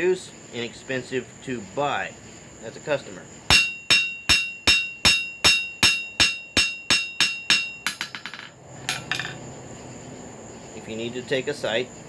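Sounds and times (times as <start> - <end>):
hammer striking nail on anvil: 3.5 - 9.4.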